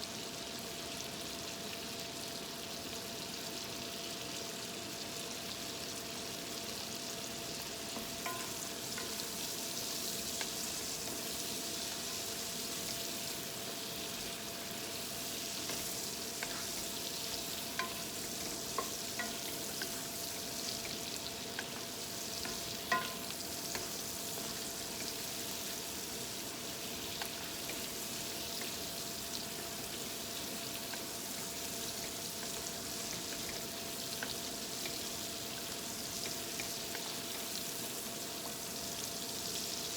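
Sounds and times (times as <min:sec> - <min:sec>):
food sizzling in a pan: 0:00.0 - 0:39.9
utensil clicking against pan: 0:08.0 - 0:09.2, 0:17.7 - 0:20.1, 0:20.8 - 0:24.0.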